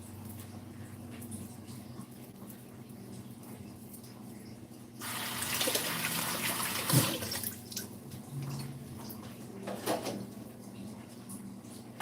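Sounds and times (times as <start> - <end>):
tap water running into sink: 5.0 - 7.9.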